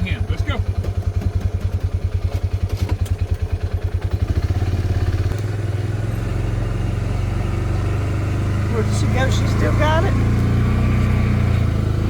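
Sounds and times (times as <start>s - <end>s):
small vehicle engine running: 0.0s - 12.0s.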